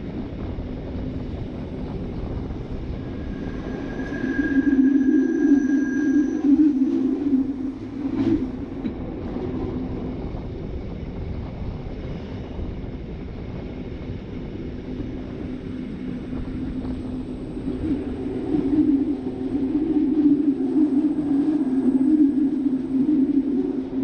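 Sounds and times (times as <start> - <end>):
electric train rumbling: 0.0 - 24.0
low hum: 1.2 - 10.6, 15.0 - 24.0.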